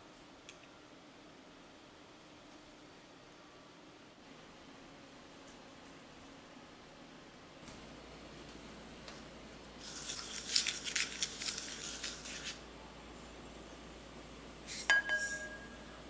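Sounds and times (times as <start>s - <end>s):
spoon stirring sugar in a cup: 9.8s - 12.6s, 14.7s - 15.8s.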